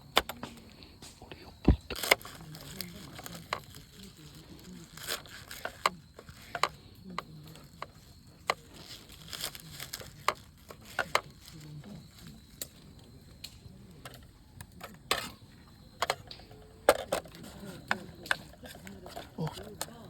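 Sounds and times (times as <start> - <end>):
crinkling: 0.0 - 20.0
cooking gear clicking and knocking: 16.0 - 20.0.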